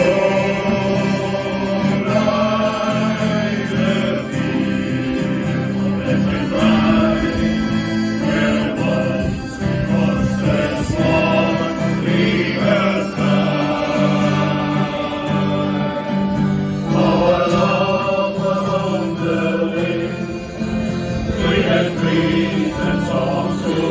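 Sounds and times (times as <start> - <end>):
choir singing a sea shanty: 0.0 - 23.9.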